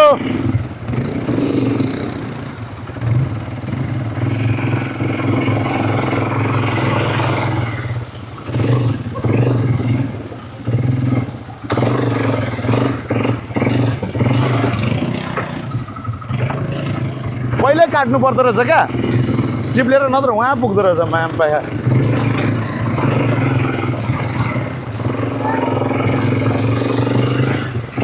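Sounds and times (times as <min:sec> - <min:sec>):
quad bike engine revving: 0:00.0 - 0:28.0
bike clattering over rough ground: 0:20.6 - 0:25.4.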